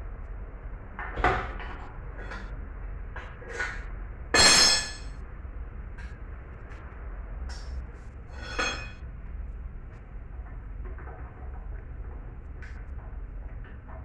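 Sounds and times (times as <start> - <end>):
metal tools and parts clanking: 4.4 - 5.1, 8.4 - 9.0.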